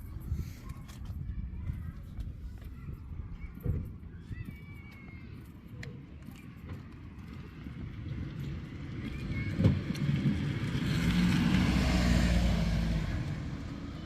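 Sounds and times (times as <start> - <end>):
vehicle passing by: 8.1 - 14.0.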